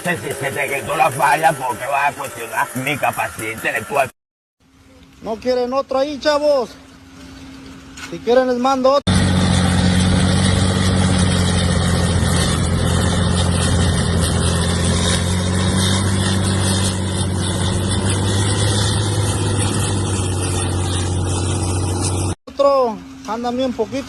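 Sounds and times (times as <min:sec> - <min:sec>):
large engine humming: 0:00.0 - 0:04.9, 0:09.1 - 0:22.4.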